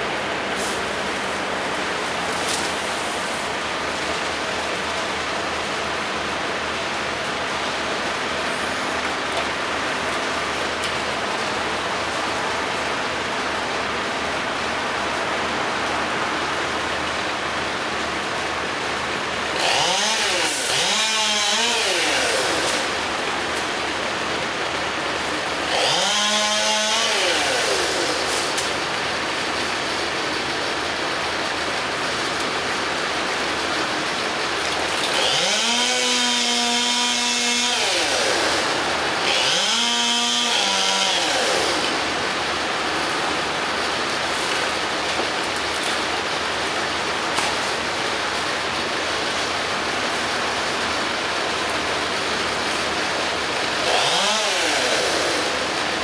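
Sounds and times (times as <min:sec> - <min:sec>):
chainsaw revving: 0:19.4 - 0:24.2, 0:24.9 - 0:29.9, 0:33.3 - 0:50.1, 0:51.8 - 0:56.0.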